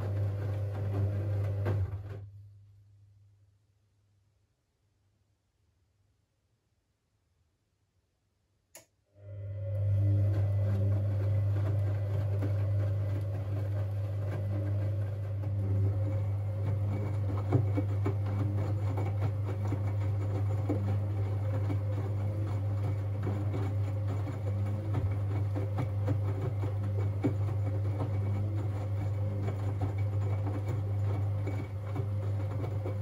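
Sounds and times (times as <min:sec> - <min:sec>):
washing machine motor hum: 0:00.0 - 0:02.4, 0:09.2 - 0:33.0.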